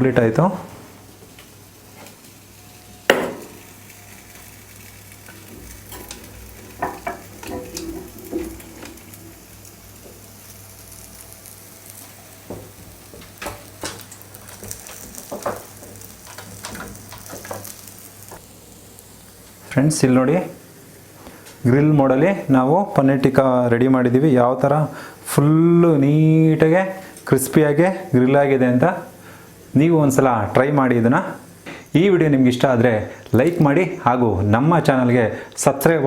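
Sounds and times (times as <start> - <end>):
faint sizzle: 0.0 - 36.0
dish and utensils clinking: 5.6 - 9.2.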